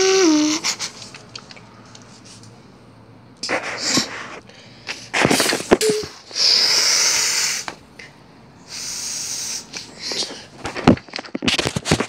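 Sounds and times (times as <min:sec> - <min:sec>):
steam hissing: 0:06.3 - 0:07.7, 0:08.6 - 0:10.2.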